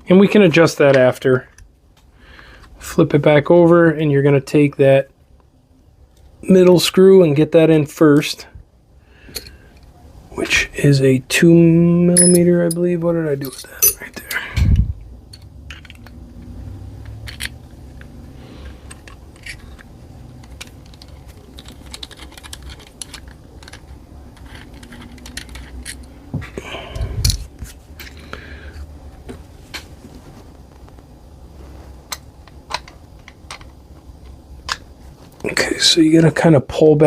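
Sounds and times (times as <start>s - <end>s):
low steady hum: 0.0s - 37.0s
small metal parts clicking: 12.2s - 12.8s, 13.4s - 14.4s, 15.3s - 26.1s.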